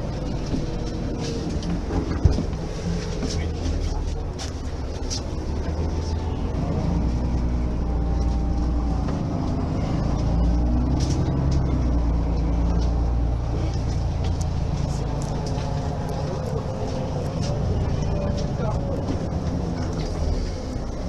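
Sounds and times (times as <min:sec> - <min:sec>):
bus diesel engine rumbling: 0:00.0 - 0:21.0.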